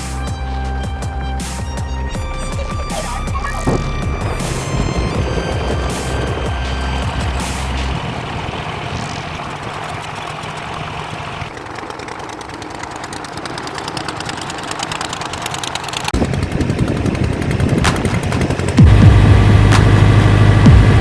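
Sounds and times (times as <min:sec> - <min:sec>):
boat engine running: 0:00.0 - 0:21.0
rapid fine clicking: 0:04.4 - 0:20.7.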